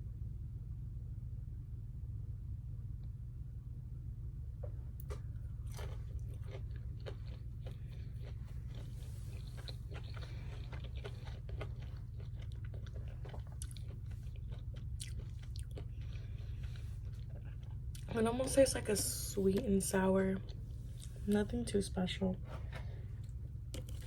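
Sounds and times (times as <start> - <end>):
steady low hum: 0.0 - 24.0
person chewing close up: 5.0 - 18.1, 20.4 - 21.3, 23.2 - 24.0.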